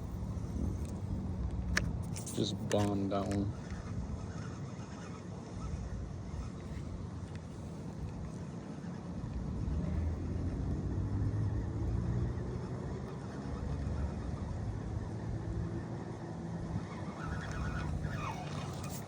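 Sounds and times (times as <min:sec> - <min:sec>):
wind noise: 0:00.0 - 0:04.6
low engine hum: 0:00.0 - 0:19.0.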